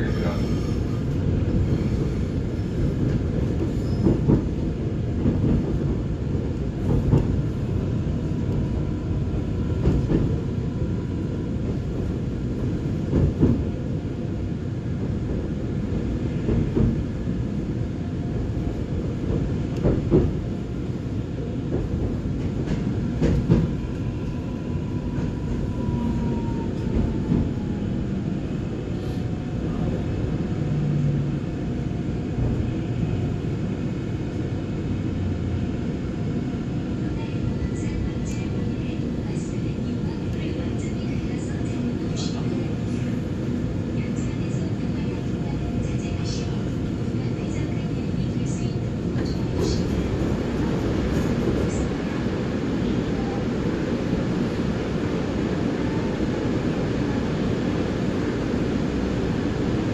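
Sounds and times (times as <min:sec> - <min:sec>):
train wheels rumbling on rails: 0:00.0 - 0:59.9
train wheel knocks: 0:19.3 - 0:20.4, 0:21.7 - 0:23.8.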